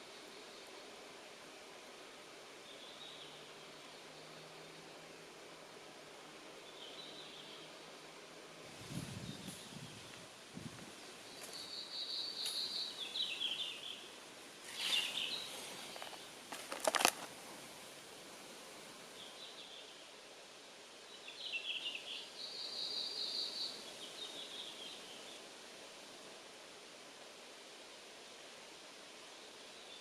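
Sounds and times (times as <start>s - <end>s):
forest background hiss: 0.0s - 30.0s
songbird singing: 2.5s - 5.6s, 6.2s - 8.2s, 10.9s - 17.3s, 19.1s - 20.2s, 21.0s - 25.5s.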